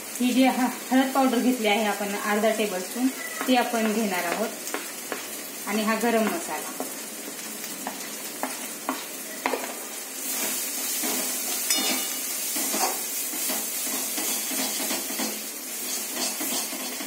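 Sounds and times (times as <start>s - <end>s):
puree sizzling in a pan: 0.0s - 17.0s
spoon stirring and scraping: 10.4s - 17.0s
spoon clinking against pan: 11.6s - 12.9s.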